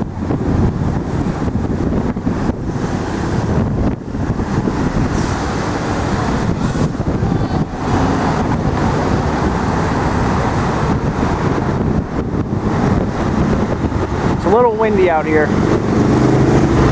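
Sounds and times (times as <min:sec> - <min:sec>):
city street traffic rumble: 0:00.0 - 0:16.9
wind buffeting microphone: 0:00.0 - 0:16.9.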